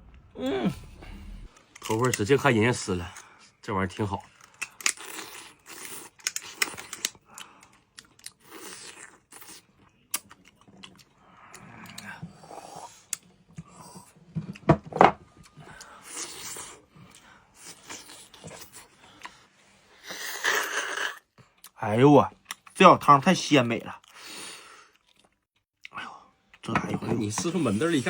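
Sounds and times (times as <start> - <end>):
people chewing and crunching: 3.0 - 14.7, 15.3 - 21.8, 23.9 - 26.7.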